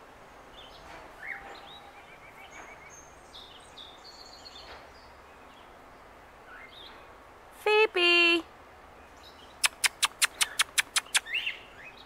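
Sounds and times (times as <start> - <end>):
outdoor background hiss: 0.0 - 12.0
faint bird chirps and trills: 9.0 - 12.0.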